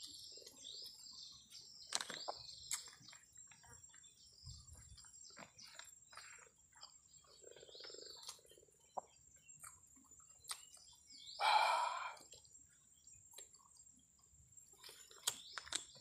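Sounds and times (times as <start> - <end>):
man chewing food: 0.0 - 16.0
wet mouth clicks and lip smacks: 10.4 - 10.7.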